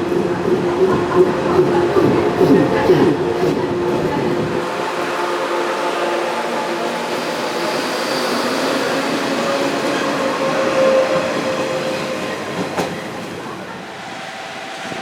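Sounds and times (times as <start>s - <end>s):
electric train whine: 0.0s - 15.0s
train running noise: 0.0s - 15.0s.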